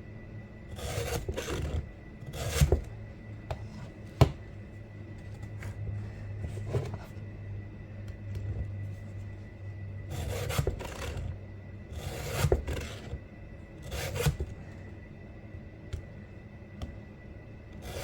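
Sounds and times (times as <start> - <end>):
steady low hum: 0.0 - 18.0
file rasping on chain cutter: 0.8 - 2.7, 10.1 - 11.3, 12.0 - 13.0, 13.8 - 14.4.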